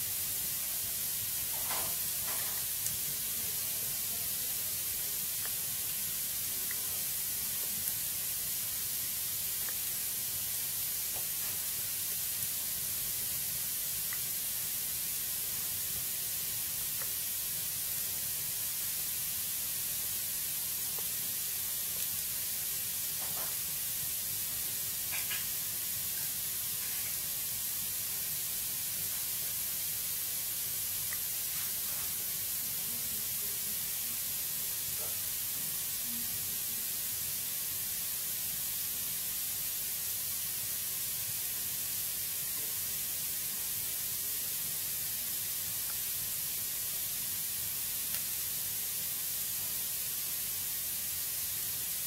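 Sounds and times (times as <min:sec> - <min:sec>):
wood fire hissing: 0:00.0 - 0:52.0
fire crackles and pops: 0:00.6 - 0:19.4, 0:20.1 - 0:27.4, 0:28.9 - 0:32.3, 0:48.0 - 0:49.8.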